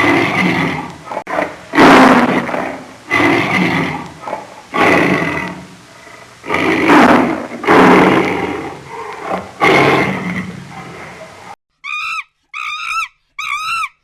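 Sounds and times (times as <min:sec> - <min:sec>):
large animal calling: 0:00.0 - 0:14.0.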